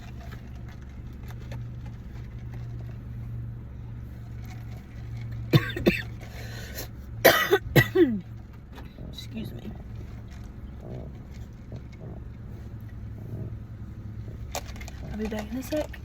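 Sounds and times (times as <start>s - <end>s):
car engine idling: 0.0s - 16.0s
person coughing: 5.5s - 6.2s, 7.2s - 8.2s.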